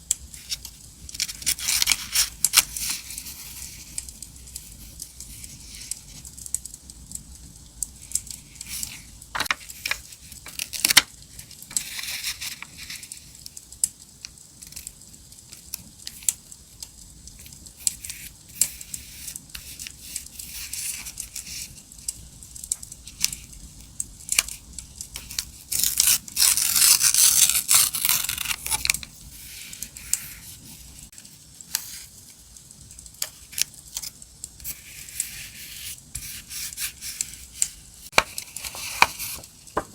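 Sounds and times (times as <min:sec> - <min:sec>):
paper rustling and tearing: 0:00.4 - 0:04.0, 0:08.6 - 0:11.0, 0:11.7 - 0:13.2, 0:25.2 - 0:31.1, 0:34.6 - 0:39.9.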